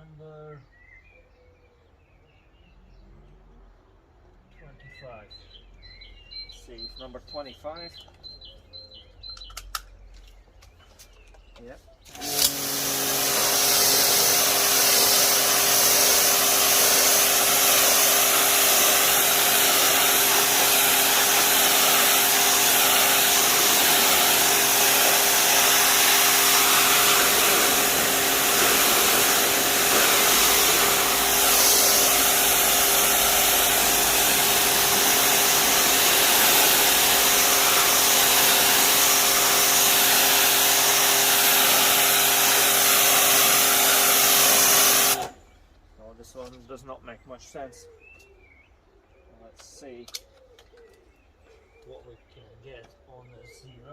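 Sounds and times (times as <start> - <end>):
pressure washer motor hum: 12.1 - 45.5
water spray hissing: 12.2 - 45.4.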